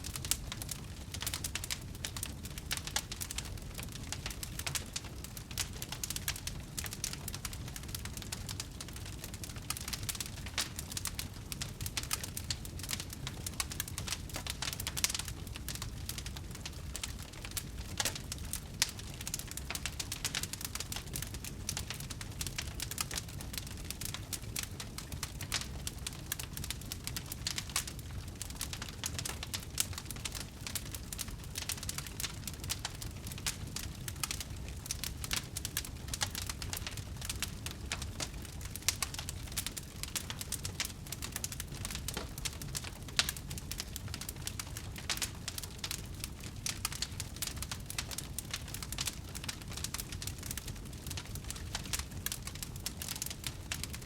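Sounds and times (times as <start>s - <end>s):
fire rumble: 0.0s - 54.0s
wood fire crackling: 0.0s - 54.0s.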